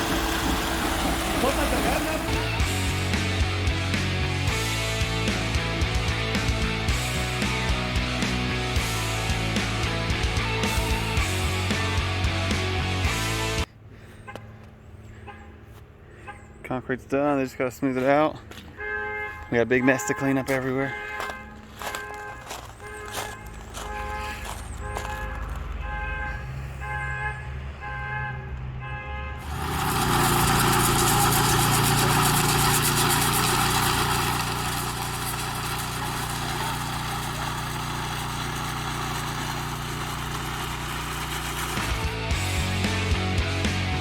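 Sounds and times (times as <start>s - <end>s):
heavy vehicle engine running: 0.0s - 11.8s, 29.4s - 43.8s.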